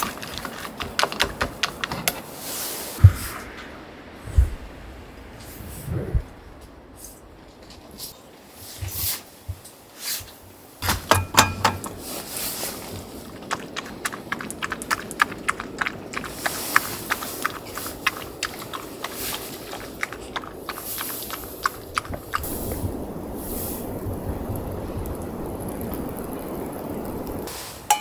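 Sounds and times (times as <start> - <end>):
steady hiss: 20.8 - 28.0
sharp clicks and crackles: 23.8 - 27.5.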